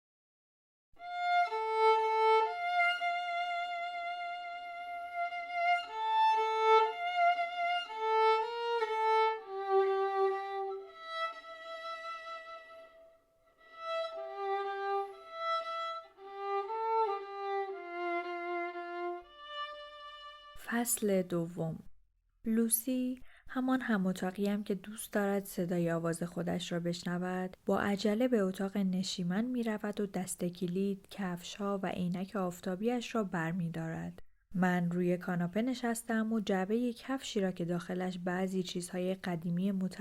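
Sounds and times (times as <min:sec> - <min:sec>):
slow solo violin melody: 0:01.0 - 0:20.6.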